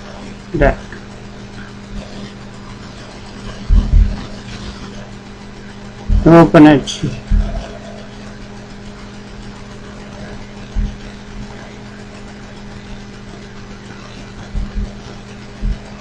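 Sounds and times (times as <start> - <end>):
steady low hum: 0.0 - 16.0
soft low thumps: 3.5 - 4.6, 5.6 - 13.2, 14.4 - 16.0.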